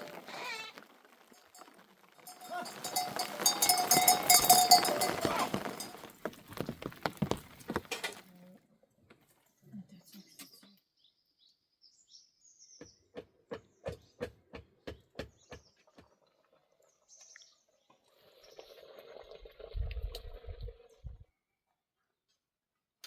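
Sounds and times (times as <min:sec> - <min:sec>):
bird chirping: 0:09.6 - 0:16.2.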